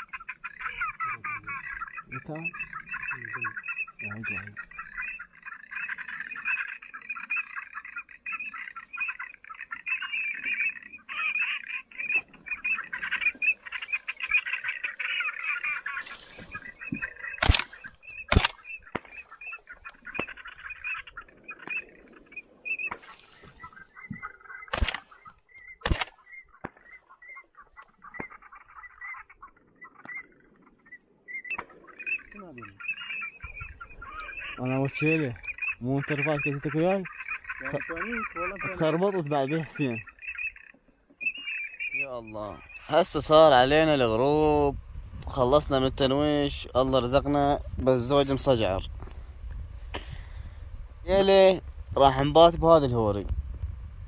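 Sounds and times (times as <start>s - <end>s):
waterbirds chattering: 0.0s - 53.2s
gunshots: 17.4s - 19.2s, 24.7s - 25.1s, 25.8s - 26.9s.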